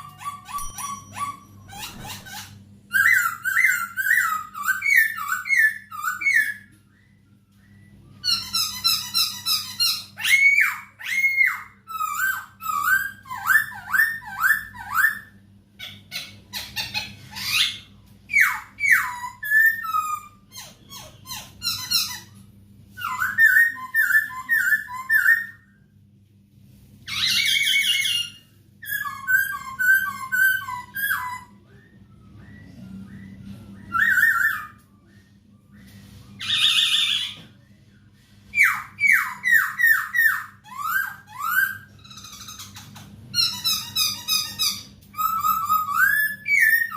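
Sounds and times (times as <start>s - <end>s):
harsh bird chattering: 0.0s - 6.6s
faint low hum: 0.0s - 46.9s
bird singing whistled notes: 27.2s - 37.7s.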